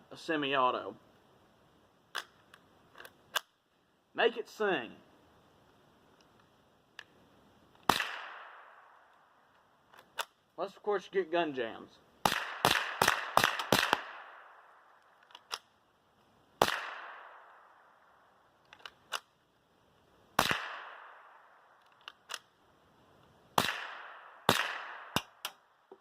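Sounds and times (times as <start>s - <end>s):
rifle shots with echo: 7.9s - 9.0s, 12.2s - 14.8s, 16.6s - 17.9s, 20.4s - 21.6s, 23.6s - 25.4s.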